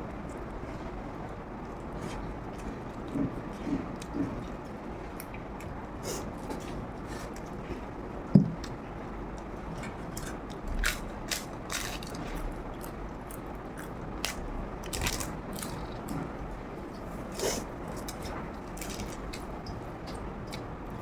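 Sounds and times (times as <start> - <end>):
person biting and chewing food: 10.2 - 16.2.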